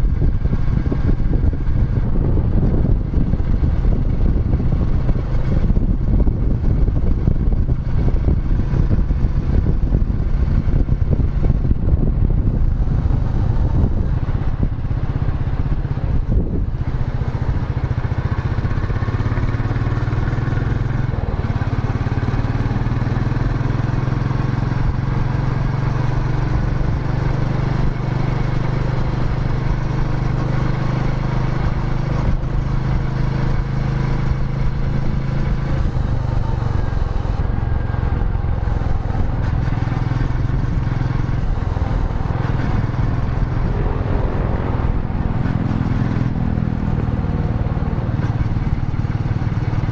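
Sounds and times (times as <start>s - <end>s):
single-cylinder engine thumping: 26.4s - 49.9s.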